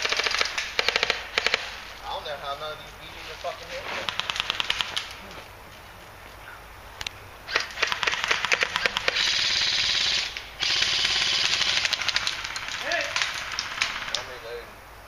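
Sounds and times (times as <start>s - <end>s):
airsoft gunfire: 0.0s - 1.7s, 4.1s - 5.1s, 7.5s - 14.4s.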